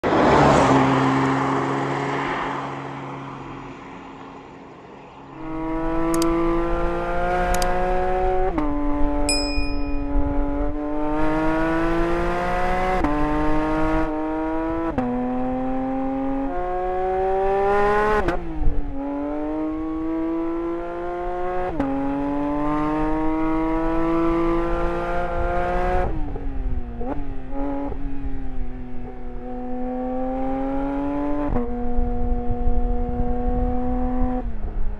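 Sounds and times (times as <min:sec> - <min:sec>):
car engine under load: 0:01.0 - 0:09.3.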